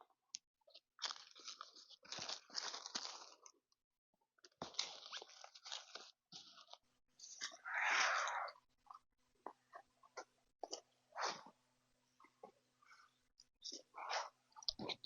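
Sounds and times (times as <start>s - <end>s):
dry crunching: 1.0s - 3.6s, 4.6s - 6.8s.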